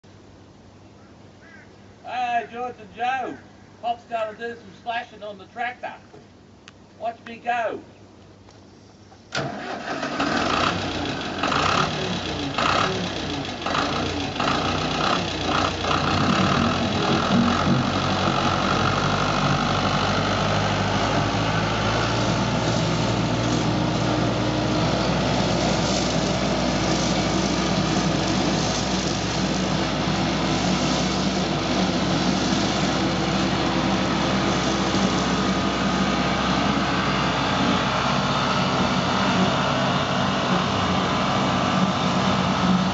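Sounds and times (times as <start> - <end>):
tractor engine starting and running: 9.3 - 42.9.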